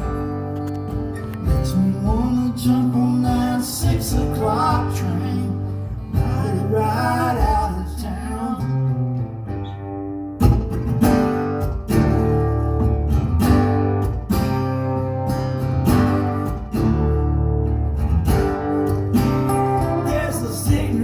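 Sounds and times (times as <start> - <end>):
low bass line: 0.0 - 9.6
acoustic guitar strumming chords: 0.0 - 21.0.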